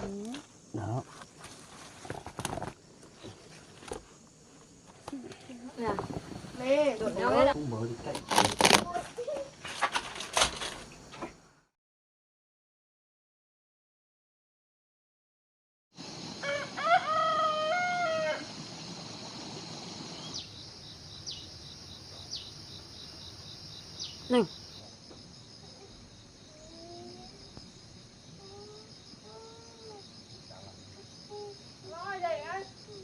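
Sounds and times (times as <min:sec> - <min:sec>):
high insect drone: 0:00.0 - 0:11.5, 0:16.0 - 0:33.0
rooster crowing: 0:16.3 - 0:18.6.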